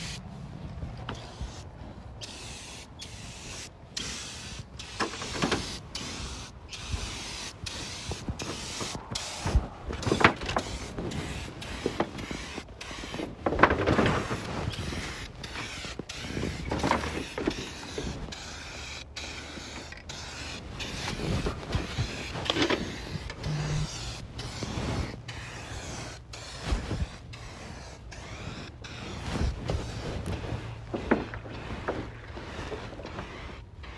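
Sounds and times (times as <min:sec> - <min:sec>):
aerosol spray paint hissing: 0:01.1 - 0:01.6, 0:02.2 - 0:13.3, 0:14.2 - 0:21.2, 0:21.8 - 0:30.0.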